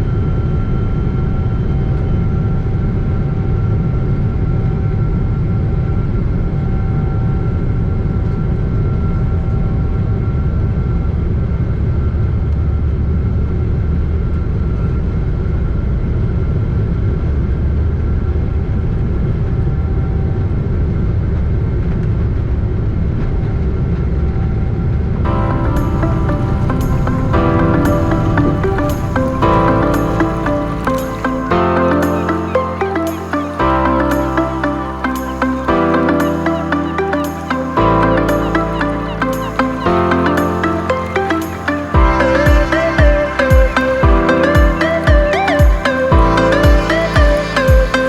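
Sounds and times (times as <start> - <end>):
aircraft cabin rumble: 25.3 - 31.4
music: 25.3 - 48.0.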